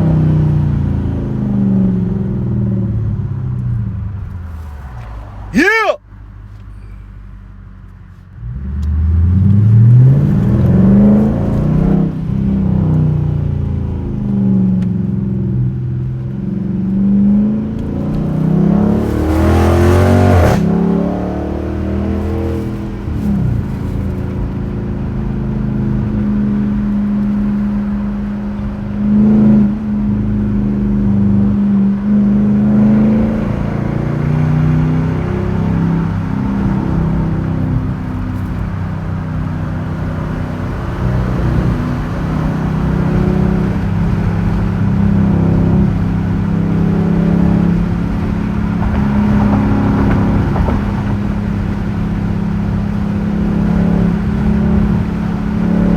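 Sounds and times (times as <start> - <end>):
loud rush of noise: 5.5 - 6.0
car engine accelerating hard: 8.3 - 55.9.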